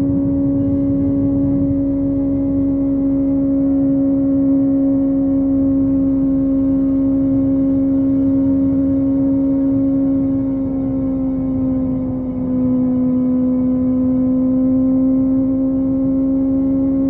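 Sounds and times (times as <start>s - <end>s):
wind rush: 0.0s - 3.3s
motorcycle engine cruising: 0.0s - 17.0s.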